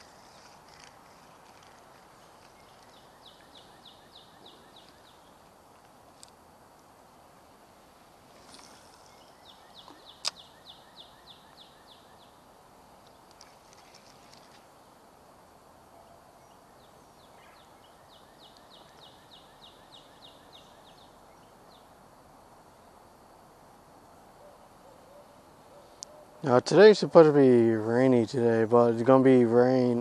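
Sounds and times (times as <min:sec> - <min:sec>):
faint bird song: 0:00.0 - 0:23.4, 0:24.0 - 0:30.0
sharp click: 0:09.8 - 0:10.4.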